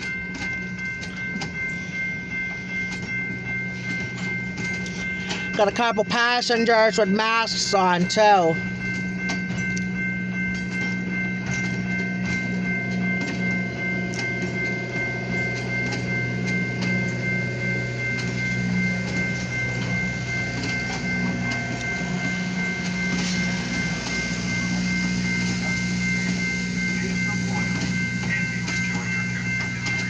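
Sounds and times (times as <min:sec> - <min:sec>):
high ringing tone: 0:00.0 - 0:30.0
low hum: 0:08.6 - 0:30.0
train wheels clicking over rail joints: 0:08.8 - 0:30.0.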